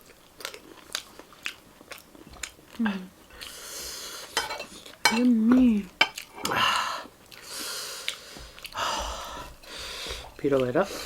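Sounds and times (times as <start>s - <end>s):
chewing: 0.0s - 11.0s
cutlery clinking on a plate: 4.4s - 5.3s.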